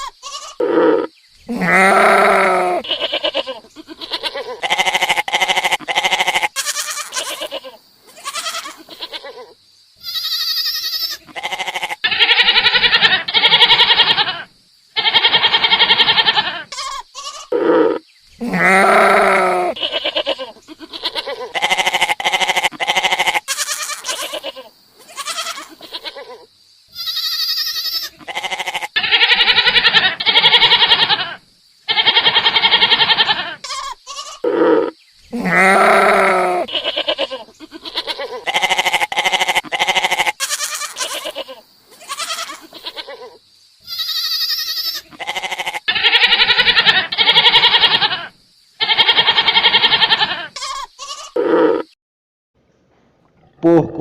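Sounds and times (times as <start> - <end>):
goats bleating: 0.0 - 14.4, 15.0 - 26.4, 27.0 - 43.3, 43.9 - 51.8.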